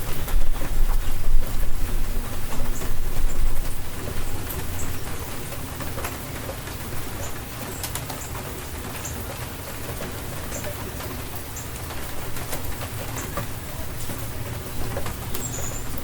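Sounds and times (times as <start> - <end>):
sharp drips and patters: 0.0 - 16.0
steady rain falling: 0.0 - 16.0
bird chirping: 15.3 - 16.0.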